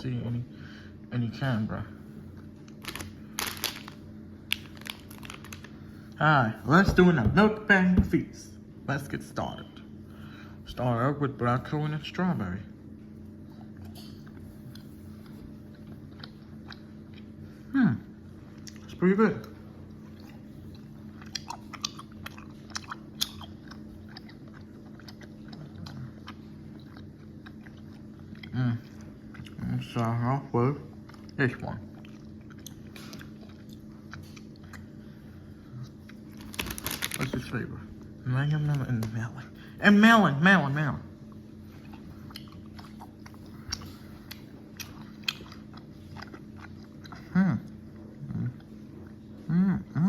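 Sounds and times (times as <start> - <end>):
low steady hum: 0.0 - 50.0
person chewing gummy candy: 2.3 - 6.2, 13.5 - 17.4, 18.4 - 30.2, 30.8 - 35.1, 35.7 - 37.4, 41.3 - 50.0.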